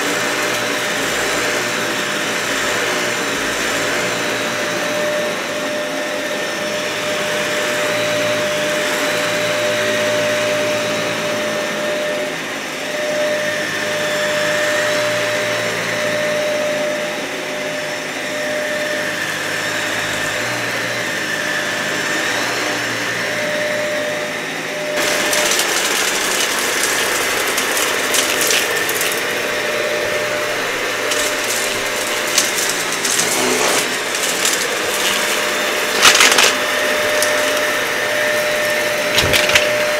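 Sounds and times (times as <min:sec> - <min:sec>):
vacuum cleaner running: 0:00.0 - 0:39.9
debris crackling in vacuum: 0:25.0 - 0:39.9.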